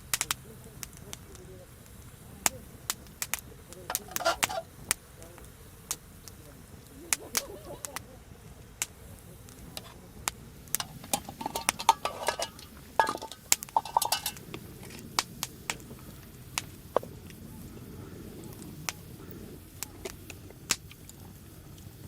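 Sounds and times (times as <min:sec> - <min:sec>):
metal utensils clinking on cookware: 0:03.9 - 0:04.7, 0:10.8 - 0:14.4.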